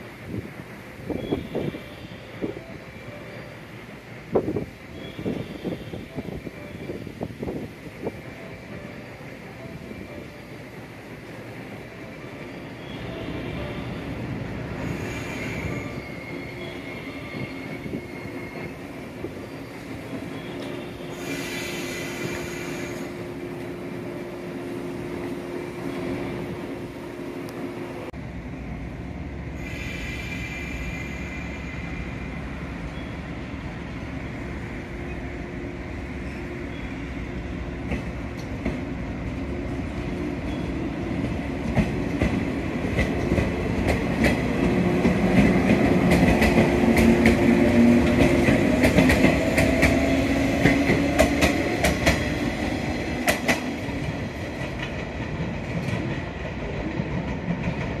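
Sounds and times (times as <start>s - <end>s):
wheels clacking over rail joints: 41.2s - 58.0s.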